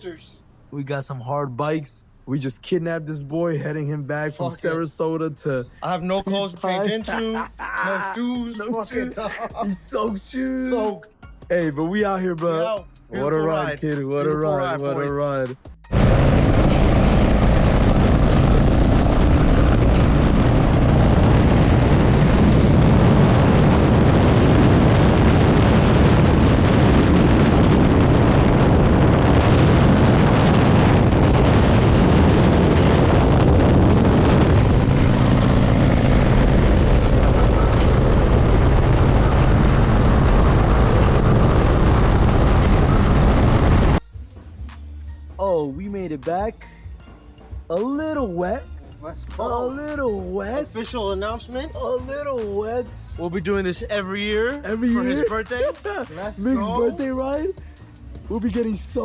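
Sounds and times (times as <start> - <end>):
motorcycle engine cruising: 15.9 - 44.0
wind and road noise: 15.9 - 44.0.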